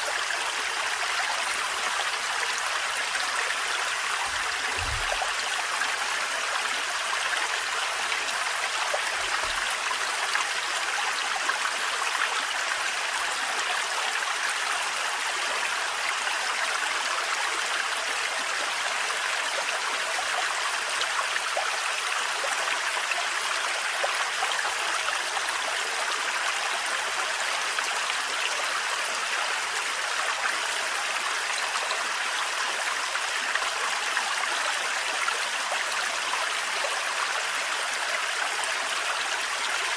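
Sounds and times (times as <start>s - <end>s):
waterfall splashing: 4.2s - 5.5s.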